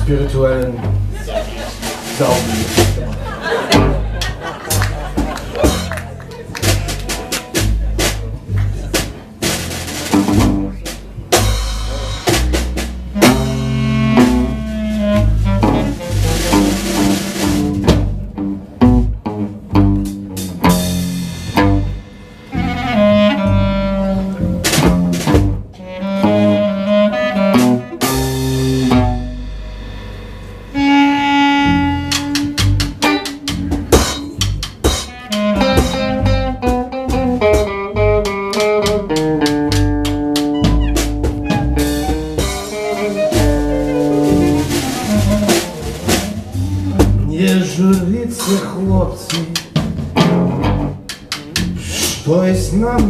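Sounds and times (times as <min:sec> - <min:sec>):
double bass: 0:00.0 - 0:53.0
drum kit: 0:00.0 - 0:53.0
held melody line: 0:13.0 - 0:19.2, 0:20.9 - 0:51.6.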